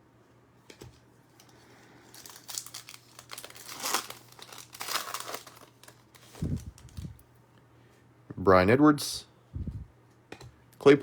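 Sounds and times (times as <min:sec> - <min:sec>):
wrapper being torn and crinkled: 0:02.1 - 0:07.2.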